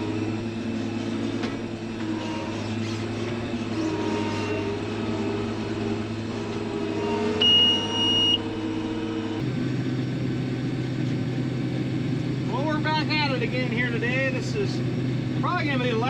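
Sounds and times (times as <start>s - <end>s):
farm machinery engine running: 0.0s - 16.0s
electronic warning beep: 7.4s - 8.5s.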